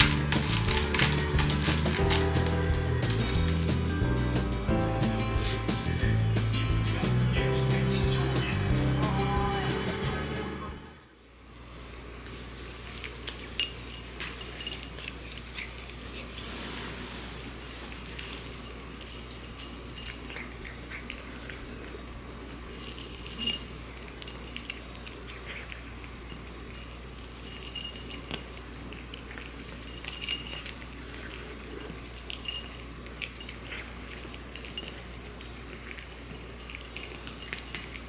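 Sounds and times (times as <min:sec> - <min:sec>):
sharp ringing clinks of food bowl: 0:13.5 - 0:15.2, 0:18.5 - 0:20.8, 0:26.2 - 0:28.8, 0:29.6 - 0:30.9, 0:31.7 - 0:38.0.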